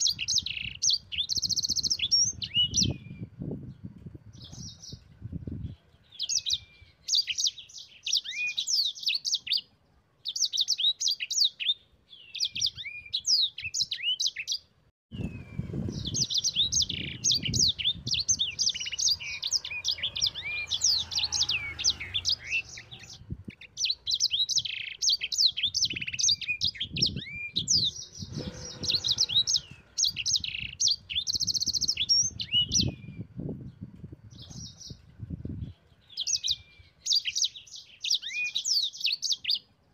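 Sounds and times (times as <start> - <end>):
canary singing: 0.0 - 3.4, 5.7 - 33.4, 35.7 - 39.8.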